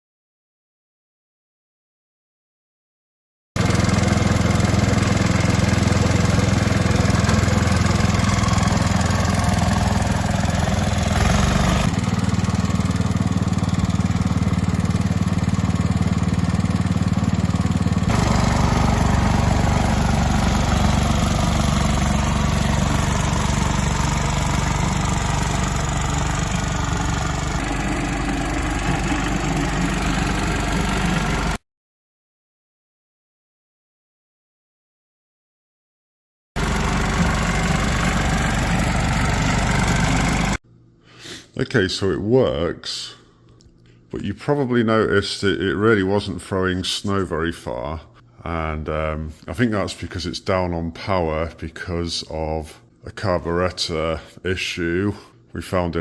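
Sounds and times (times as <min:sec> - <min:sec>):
snow thrower engine running: 0:03.6 - 0:31.6, 0:36.6 - 0:40.6.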